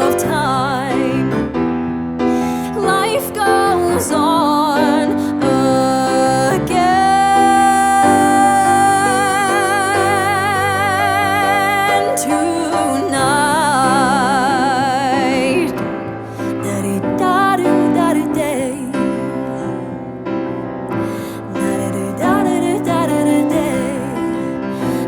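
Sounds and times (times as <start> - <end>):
piano: 0.0 - 25.0
woman singing long notes: 2.7 - 15.8.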